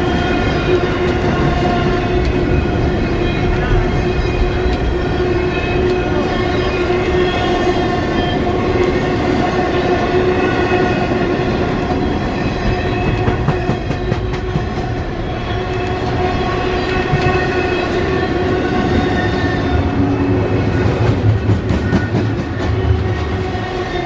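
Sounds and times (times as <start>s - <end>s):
freight train cars rumbling: 0.0s - 24.0s
wheels clacking on rail joints: 11.8s - 19.4s.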